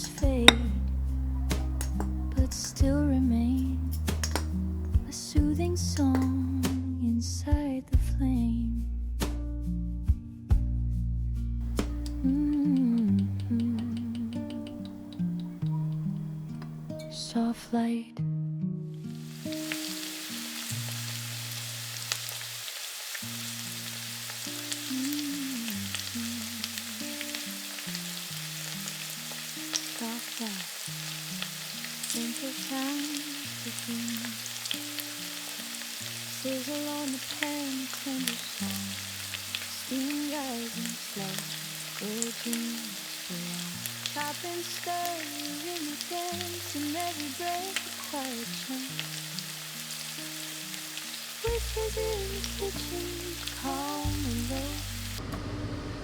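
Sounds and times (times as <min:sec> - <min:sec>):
soft instrumental music: 0:00.0 - 0:21.6, 0:24.3 - 0:55.2
food frying in hot oil: 0:19.2 - 0:55.2.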